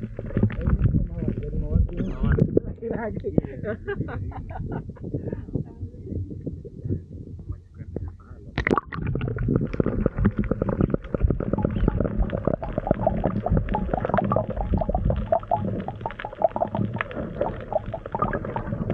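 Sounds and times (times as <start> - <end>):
dense crackling clicks: 0.0 - 3.4, 7.3 - 18.9
underwater rumbling and bubbling: 0.0 - 18.9.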